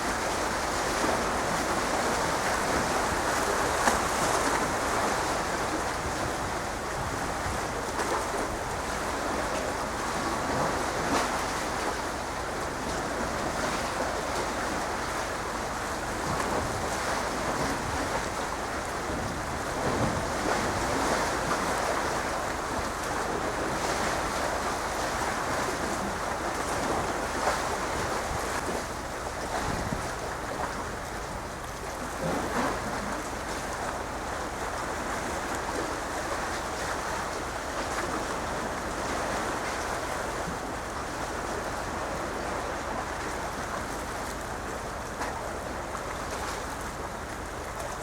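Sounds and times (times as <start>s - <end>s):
waves: 0.0s - 48.0s
wind buffeting microphone: 5.0s - 8.9s, 16.2s - 22.0s, 28.0s - 31.5s.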